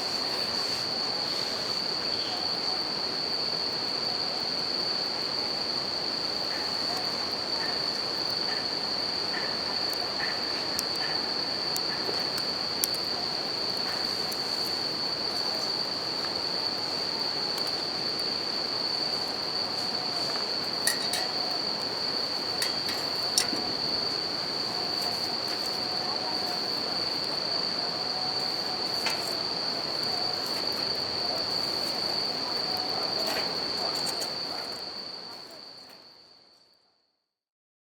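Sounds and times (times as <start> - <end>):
crickets chirring: 0.0 - 36.8
campfire crackling and popping: 7.7 - 34.8.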